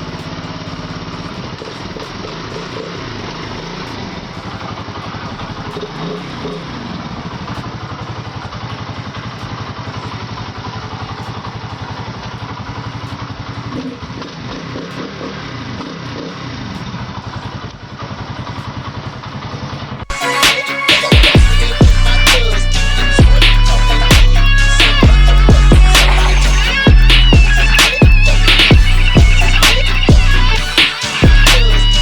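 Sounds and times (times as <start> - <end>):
motorcycle engine running: 0.0 - 20.1, 21.1 - 32.0
music: 20.1 - 32.0.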